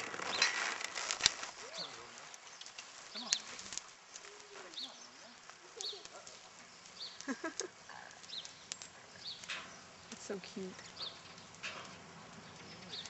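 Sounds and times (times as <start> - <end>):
bird chirping: 1.4 - 13.0
faint distant voices: 1.5 - 13.0
sharp clicks: 5.8 - 13.0.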